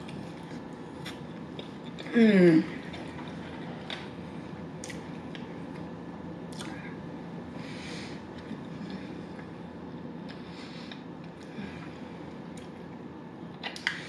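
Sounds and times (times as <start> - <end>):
person chewing: 0.0 - 2.1.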